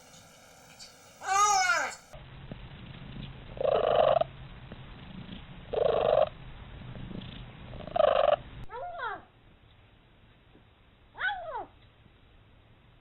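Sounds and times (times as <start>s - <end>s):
cat calls: 1.2s - 2.1s
cat purring: 3.5s - 8.6s.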